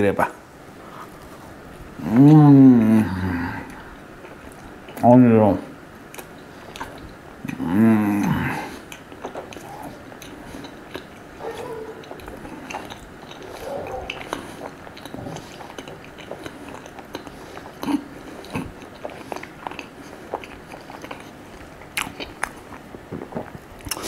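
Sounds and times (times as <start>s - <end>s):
chewing and mouth smacks: 6.1s - 7.6s, 8.7s - 24.0s.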